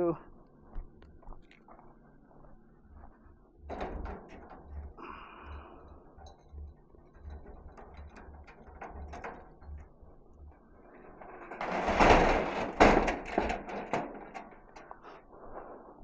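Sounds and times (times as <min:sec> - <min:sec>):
metal mechanism clicking and rattling: 0:03.7 - 0:14.9.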